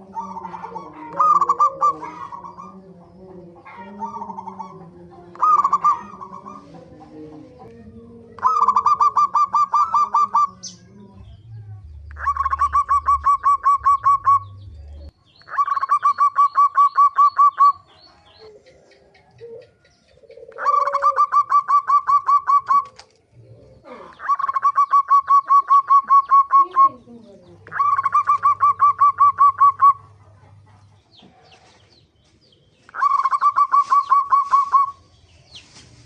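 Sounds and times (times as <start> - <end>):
dove cooing: 0.0 - 31.5, 32.8 - 35.0
fainter lower bird call: 3.6 - 6.8, 8.3 - 30.2, 32.6 - 35.8.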